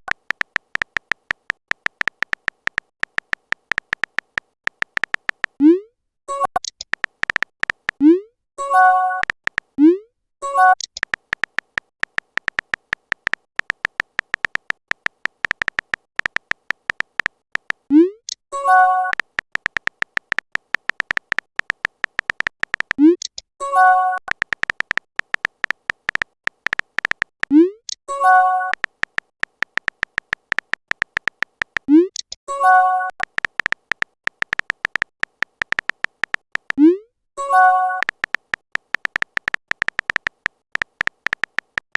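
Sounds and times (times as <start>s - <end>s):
phone keyboard typing clicks: 0.0s - 9.8s, 10.5s - 41.9s
short electronic beeps: 8.0s - 10.9s, 17.9s - 19.2s, 36.8s - 38.1s.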